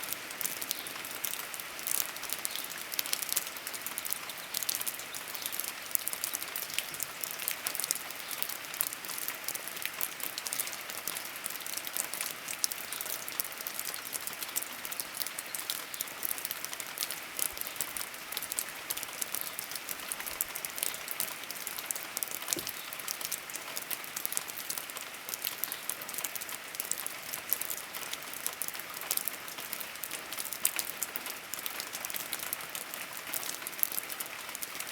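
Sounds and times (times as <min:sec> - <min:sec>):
steady rain pattering: 0:00.0 - 0:34.9.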